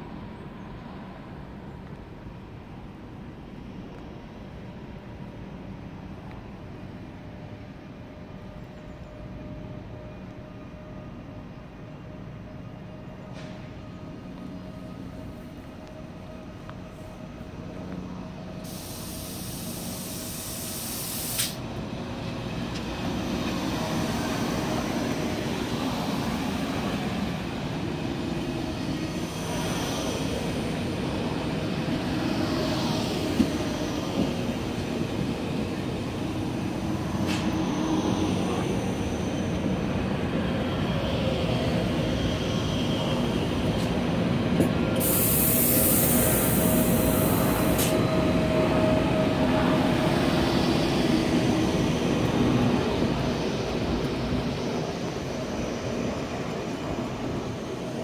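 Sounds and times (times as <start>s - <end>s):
train wheels running on rails: 0.0s - 58.0s
high hiss: 18.6s - 21.6s, 45.0s - 48.1s.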